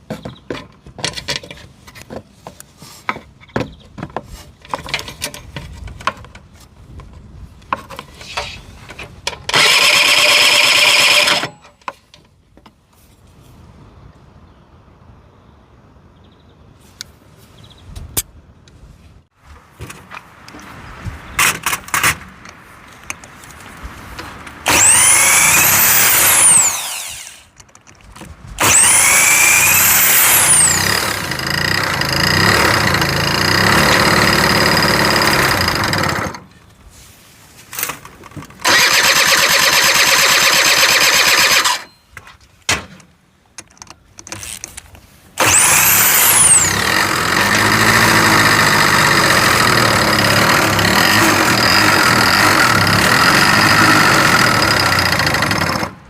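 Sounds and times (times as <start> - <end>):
scooter engine cranking: 9.5 - 11.7, 28.6 - 36.5, 38.6 - 41.9, 45.4 - 56.0.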